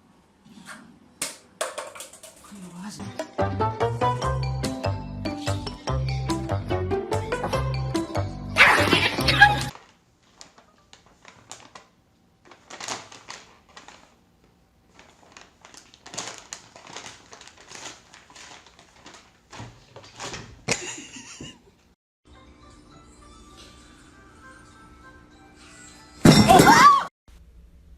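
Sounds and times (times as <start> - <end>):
rustling: 9.7 - 14.2, 14.8 - 20.6.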